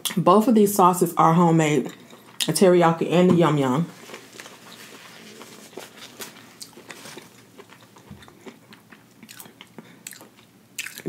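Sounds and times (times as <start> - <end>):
person chewing food: 4.0 - 11.0.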